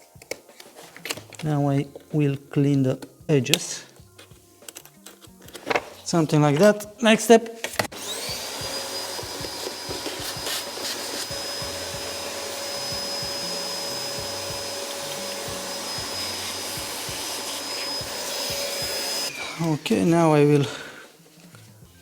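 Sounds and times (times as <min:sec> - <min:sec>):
vacuum cleaner whining: 0:07.8 - 0:21.4.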